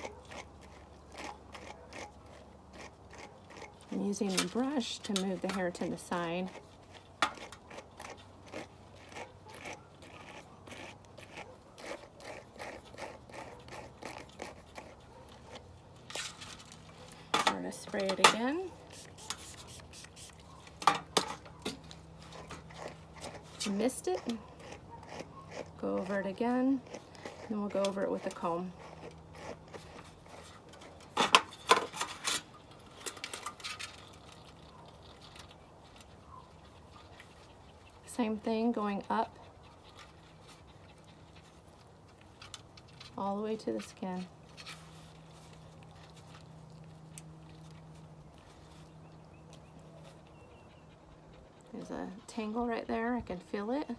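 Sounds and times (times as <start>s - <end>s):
brush scratching through dog's coat: 17.7s - 20.7s.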